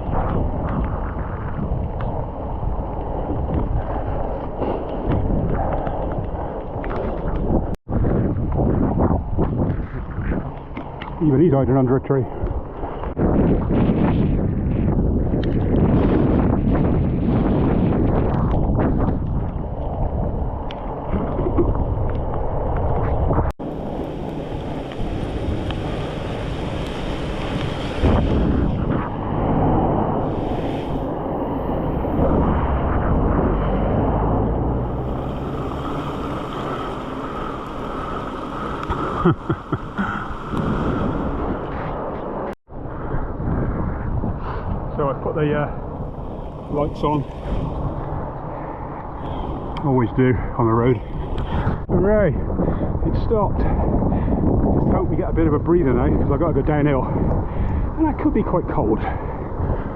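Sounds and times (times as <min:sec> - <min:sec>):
wind buffeting microphone: 0:00.0 - 0:59.9
rain hissing on wet road: 0:23.6 - 0:28.2, 0:34.9 - 0:41.0
wet road wash: 0:23.6 - 0:42.1, 0:45.8 - 0:50.2
rain ticks: 0:23.7 - 0:27.8.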